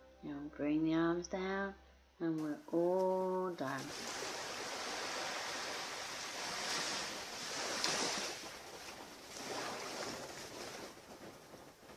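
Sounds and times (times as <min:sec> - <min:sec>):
ocean surf washing onto beach: 0:03.8 - 0:11.9.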